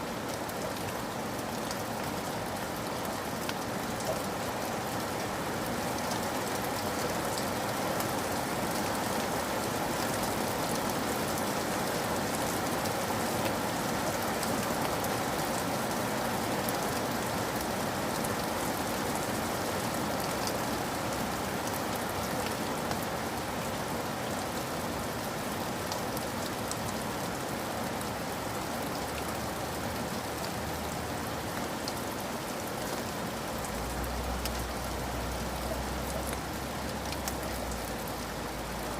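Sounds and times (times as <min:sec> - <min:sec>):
steady rain hissing: 0:00.0 - 0:38.9
raindrop ticks: 0:33.6 - 0:34.8, 0:35.5 - 0:38.2.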